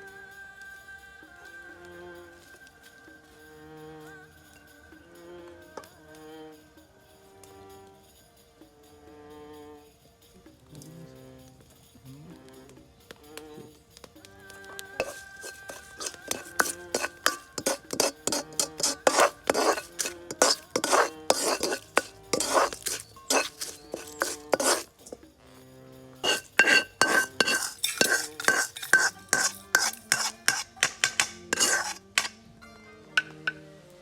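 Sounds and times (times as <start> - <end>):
soft background music: 0.0 - 34.0
metal utensils scraping cookware: 15.0 - 25.3, 26.2 - 32.4, 33.2 - 33.6.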